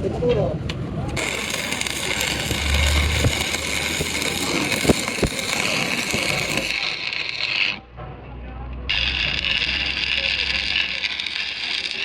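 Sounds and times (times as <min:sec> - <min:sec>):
workshop machine whining: 0:00.6 - 0:08.0, 0:08.6 - 0:12.0.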